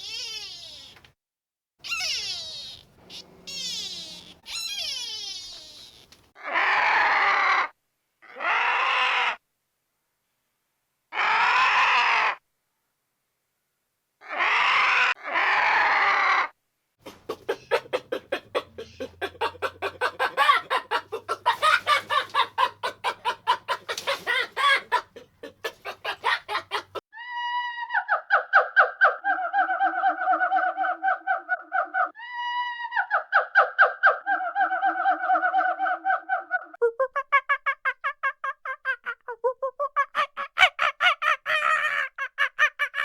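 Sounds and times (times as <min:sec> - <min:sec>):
steady pitched animal call: 0:00.0 - 0:01.0, 0:01.8 - 0:07.1, 0:17.0 - 0:27.0
chickens clucking rapidly: 0:17.0 - 0:27.0
chickens calling: 0:17.1 - 0:27.0.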